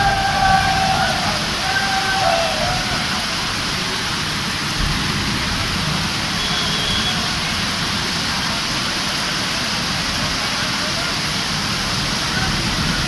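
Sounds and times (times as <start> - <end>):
heavy rain: 0.0 - 13.0
rushing water: 0.0 - 13.0.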